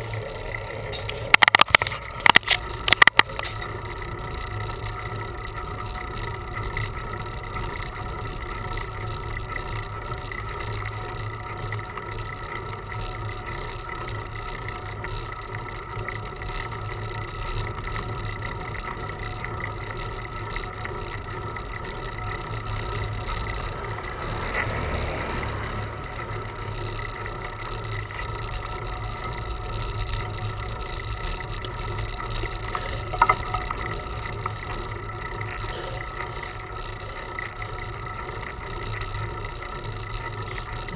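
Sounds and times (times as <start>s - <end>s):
road rumble: 0.0s - 40.9s.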